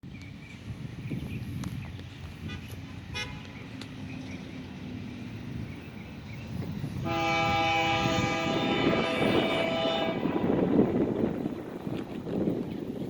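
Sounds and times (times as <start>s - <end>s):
diesel train rumbling: 0.0s - 13.0s
locomotive air horn blast: 7.0s - 10.7s.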